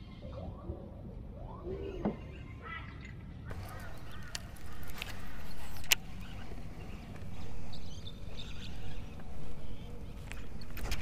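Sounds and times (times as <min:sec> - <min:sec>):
birds calling: 0:01.7 - 0:11.0
sharp clicks: 0:03.5 - 0:06.2.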